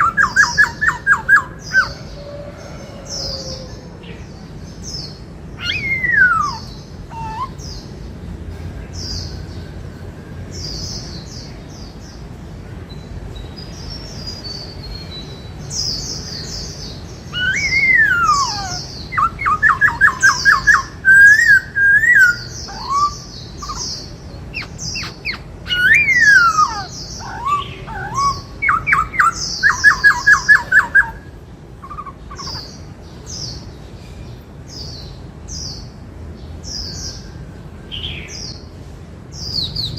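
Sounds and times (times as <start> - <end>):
fast rattling bird trills: 0.0 - 2.2, 5.6 - 7.9, 15.8 - 33.5
bird whistles gliding downward: 5.6 - 7.6, 17.3 - 24.0, 24.6 - 31.2.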